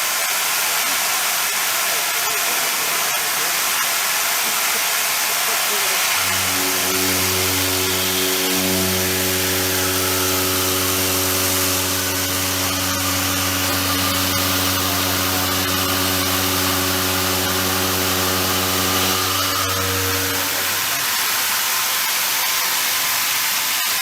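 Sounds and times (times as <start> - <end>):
hiss: 0.0 - 11.9, 19.9 - 24.0
milling machine cutting: 2.2 - 22.6.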